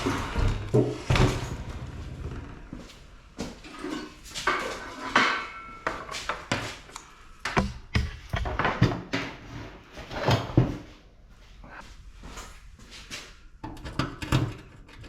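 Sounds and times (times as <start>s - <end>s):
metal scrap clanking: 3.6s - 6.1s.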